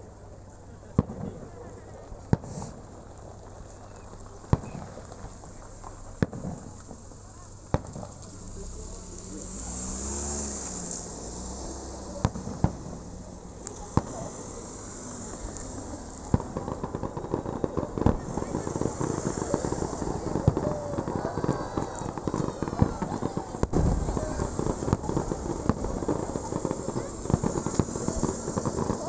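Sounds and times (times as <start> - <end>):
fireworks bangs: 0.3 - 29.0
crackling pops: 2.2 - 29.0.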